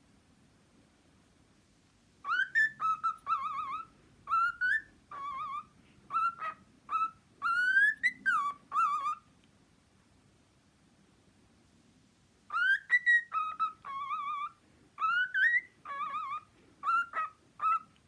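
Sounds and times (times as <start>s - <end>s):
cockatiel whistling: 2.2s - 9.2s, 12.5s - 18.0s.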